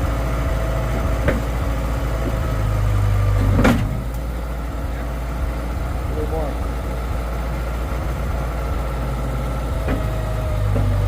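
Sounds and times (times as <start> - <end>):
engine idling: 0.0 - 11.0
sharp clunk: 3.4 - 4.2.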